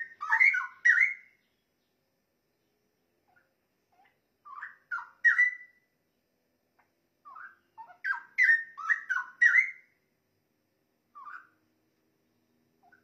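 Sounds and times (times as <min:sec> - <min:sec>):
bird whistled song: 0:00.0 - 0:01.6, 0:03.3 - 0:05.9, 0:07.2 - 0:10.0, 0:11.1 - 0:11.6.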